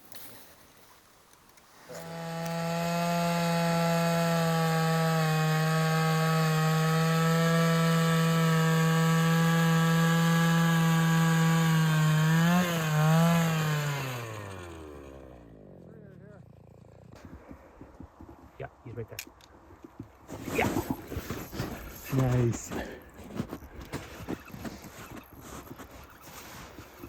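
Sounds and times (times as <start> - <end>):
ice auger motor running: 1.9 - 17.6.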